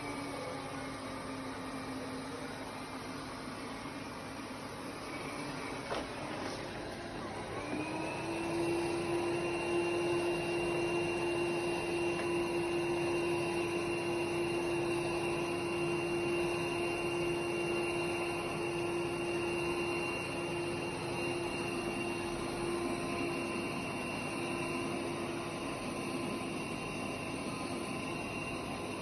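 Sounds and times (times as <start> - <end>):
vacuum motor whine: 0.0 - 29.0.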